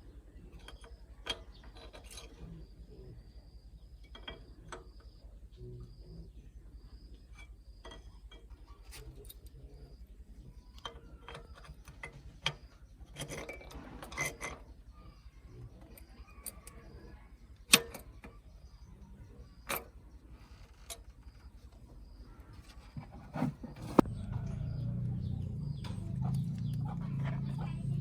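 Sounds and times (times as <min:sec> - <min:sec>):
scraping and rustling: 0:22.6 - 0:24.1.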